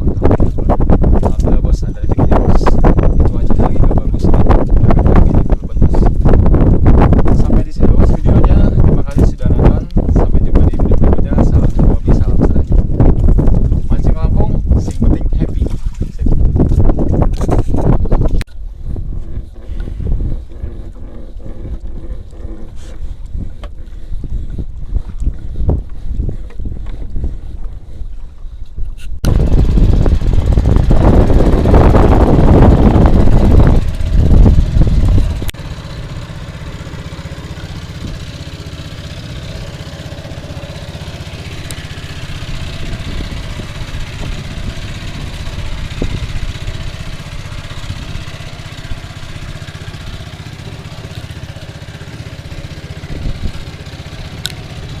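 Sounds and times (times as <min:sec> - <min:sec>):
boat engine droning: 0:18.5 - 0:55.0.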